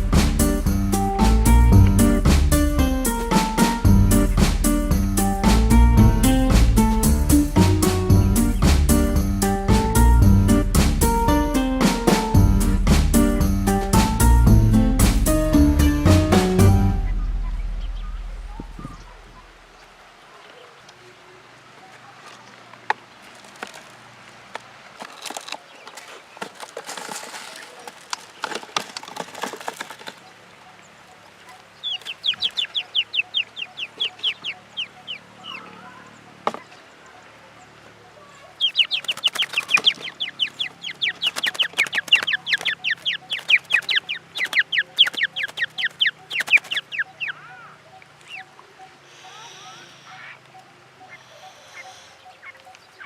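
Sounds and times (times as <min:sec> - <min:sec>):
bird calling falling notes: 0:00.0 - 0:20.8, 0:25.2 - 0:37.0, 0:38.4 - 0:53.0
rustling and clattering: 0:22.3 - 0:30.4.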